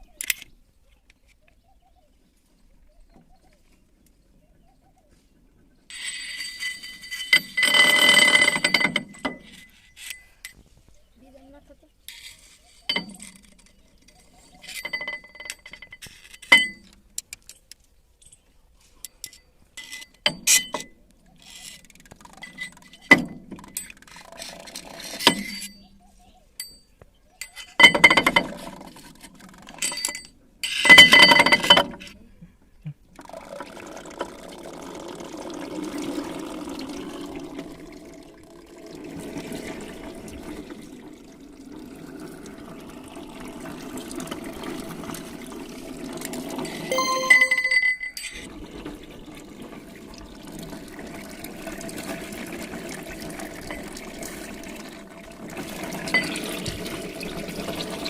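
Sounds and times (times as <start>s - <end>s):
running liquid: 33.2s - 46.9s, 48.9s - 58.0s.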